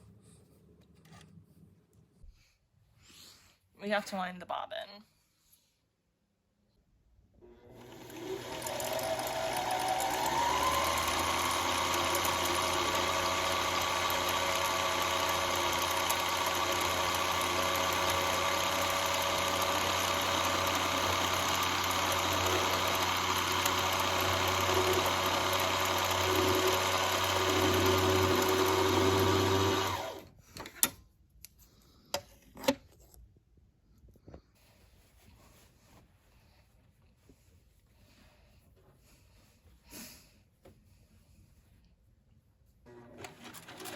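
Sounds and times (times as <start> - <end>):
sewing machine motor whining: 7.4 - 30.3.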